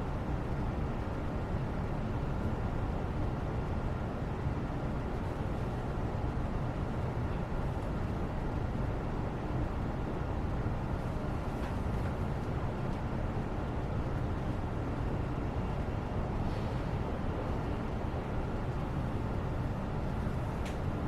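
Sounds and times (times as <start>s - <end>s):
low rumble background noise: 0.0s - 21.0s.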